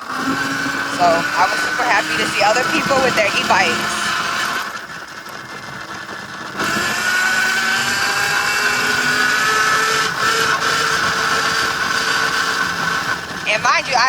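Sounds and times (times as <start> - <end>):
electric dirt bike motor whining: 0.0 - 14.0.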